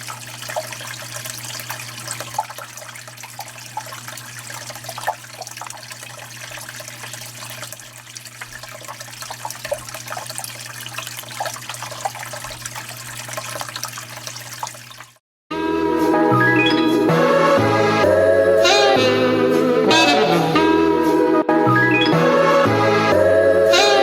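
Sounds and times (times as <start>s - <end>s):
water splashing and trickling: 0.0s - 15.2s.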